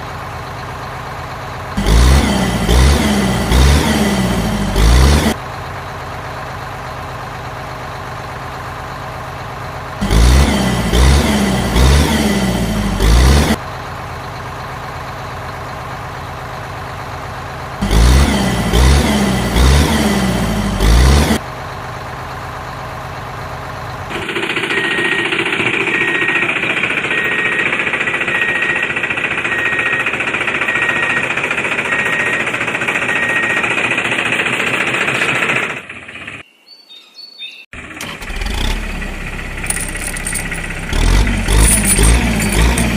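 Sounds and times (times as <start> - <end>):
vehicle engine running: 0.0 - 36.4, 37.8 - 42.9
rapid high beeping: 24.2 - 33.7
loud steady grinding: 38.2 - 42.9.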